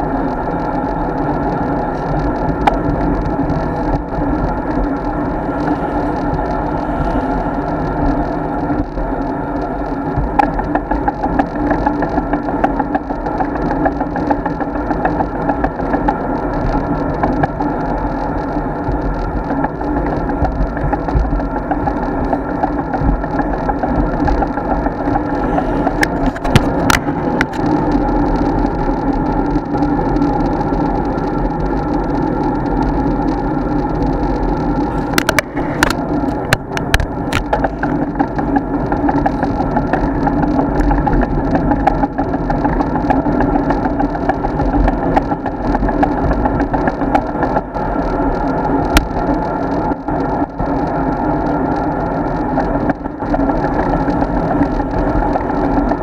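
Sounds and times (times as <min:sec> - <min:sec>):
bike clicks and rattles: 0:00.0 - 0:56.0
road and wind noise: 0:00.0 - 0:56.0.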